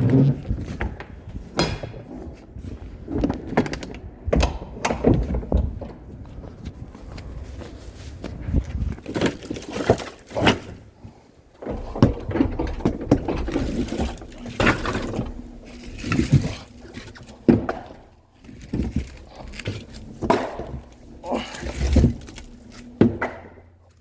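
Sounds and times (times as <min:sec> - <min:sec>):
objects knocking and thudding: 0:00.0 - 0:07.6, 0:08.2 - 0:24.0
rustling: 0:06.0 - 0:23.0.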